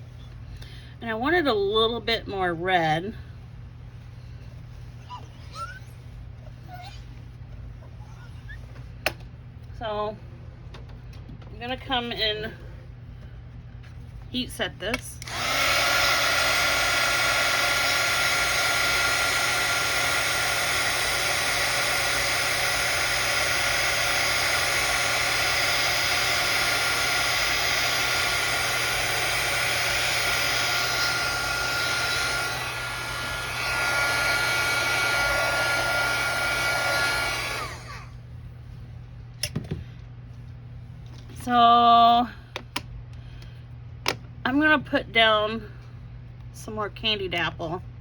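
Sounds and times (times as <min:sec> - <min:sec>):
heat tool blowing air: 0:15.2 - 0:38.2.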